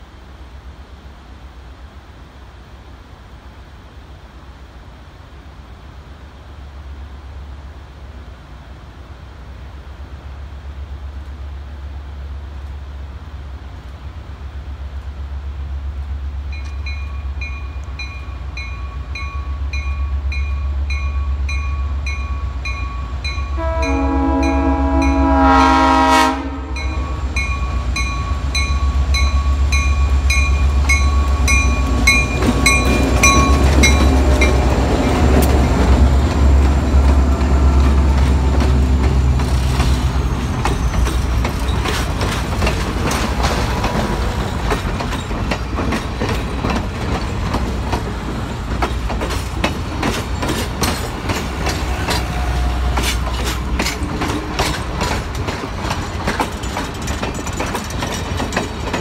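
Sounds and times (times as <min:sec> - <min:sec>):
locomotive engine rumble: 0:05.7 - 0:59.0
train horn blast: 0:23.4 - 0:27.4, 0:51.8 - 0:54.8
bell ringing: 0:26.8 - 0:35.2
wheels clicking over rail joints: 0:27.3 - 0:59.0.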